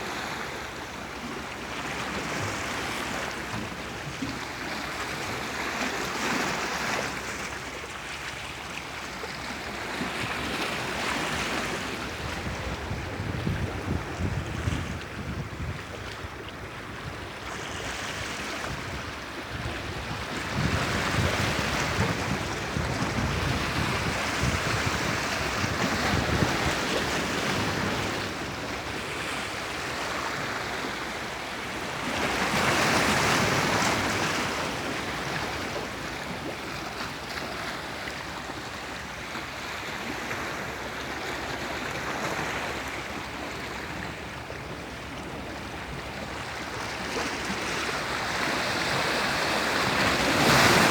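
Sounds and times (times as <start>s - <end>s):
waves breaking: 15.9s - 50.9s.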